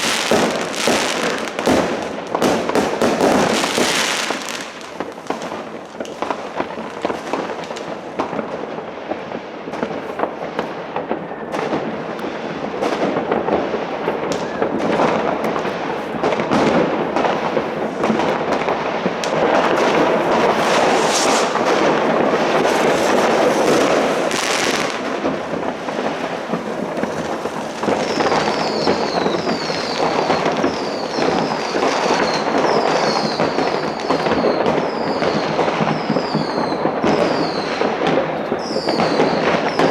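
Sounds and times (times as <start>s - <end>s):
firecrackers crackling: 0.0s - 39.9s
fireworks bangs and pops: 0.0s - 39.9s
high falling whistles: 19.5s - 25.0s.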